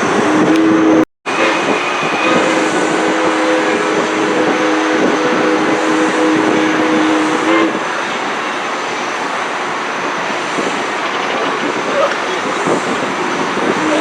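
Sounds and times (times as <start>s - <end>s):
running train noise: 0.0s - 14.0s
steam locomotive whistle: 0.2s - 8.8s, 13.7s - 14.0s.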